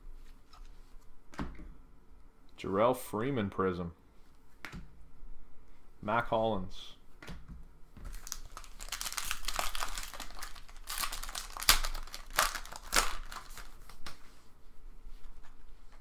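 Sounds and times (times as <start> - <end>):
foil wrapper crinkling and tearing: 8.1 - 14.2.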